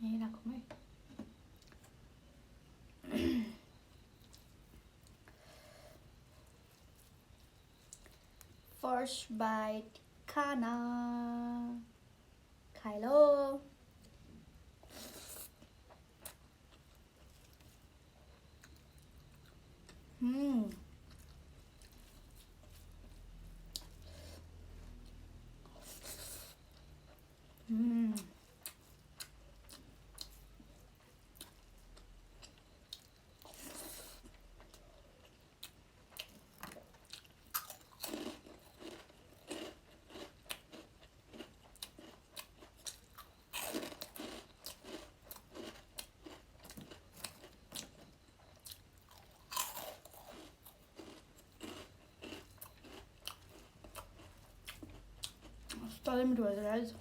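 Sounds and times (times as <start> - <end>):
close chewing and crunching: 14.8 - 56.9.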